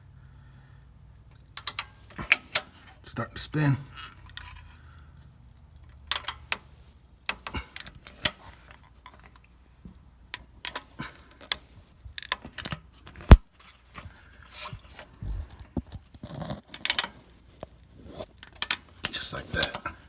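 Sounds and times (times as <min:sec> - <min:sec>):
light metallic clicks and clinks: 0:18.4 - 0:20.0.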